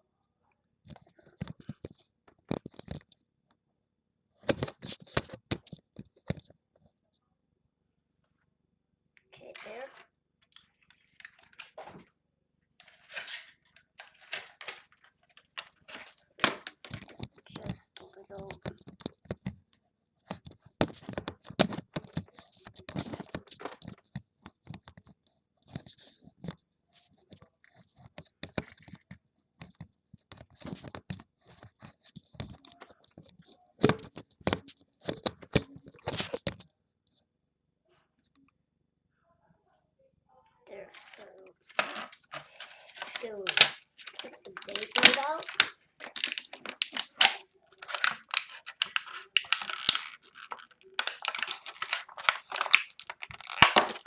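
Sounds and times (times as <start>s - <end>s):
handling clicks and rustles: 41.0s - 54.0s.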